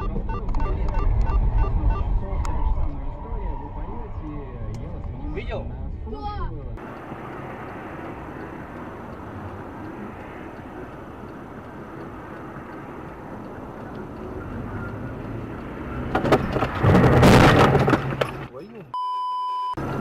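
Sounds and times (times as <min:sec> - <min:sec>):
car engine and tyres on road: 0:00.0 - 0:18.9, 0:19.7 - 0:20.0
loud clattering noise: 0:16.1 - 0:18.5.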